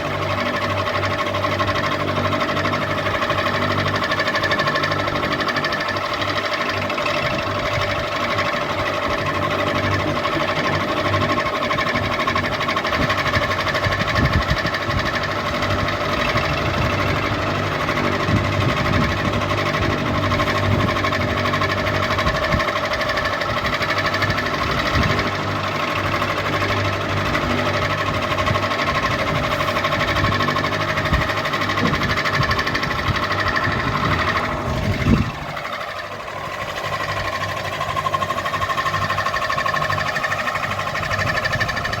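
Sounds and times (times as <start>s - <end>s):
ceiling fan motor hum: 0.0s - 42.0s
rattling knocking: 0.0s - 42.0s.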